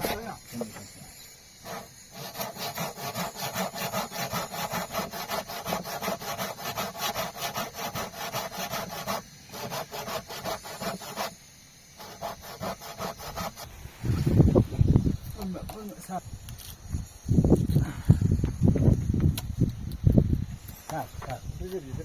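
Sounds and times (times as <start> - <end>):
handsaw cutting wood: 1.6 - 11.4, 12.0 - 13.7.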